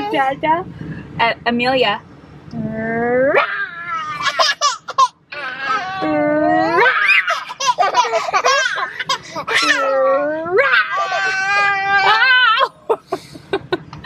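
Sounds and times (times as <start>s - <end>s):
baby laughing and squealing: 3.4s - 12.7s.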